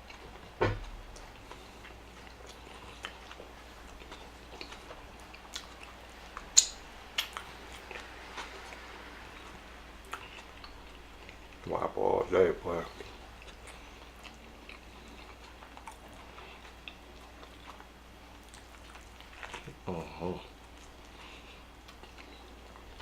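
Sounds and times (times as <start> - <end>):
thump: 0.6 - 0.8
mouth chewing clicks: 0.8 - 8.0.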